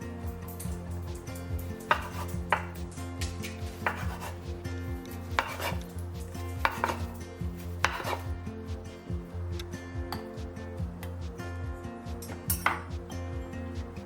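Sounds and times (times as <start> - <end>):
soft background music: 0.0 - 14.0
kitchenware clinking and knocking: 12.3 - 12.9.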